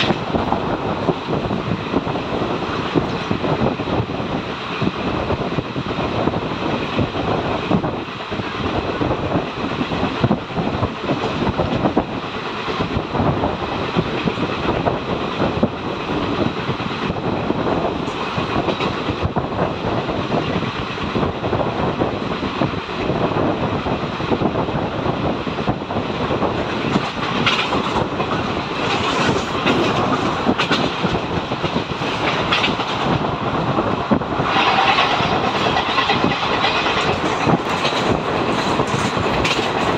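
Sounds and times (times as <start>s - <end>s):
train wheels rumbling on track: 0.0s - 39.9s
wheels clicking over rail joints: 26.4s - 39.9s.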